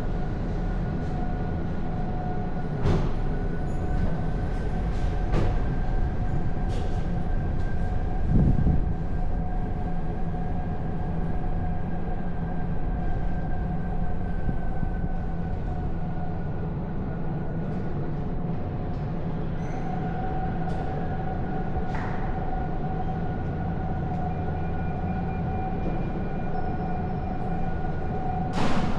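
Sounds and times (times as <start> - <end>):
steady whine: 0.0 - 28.9.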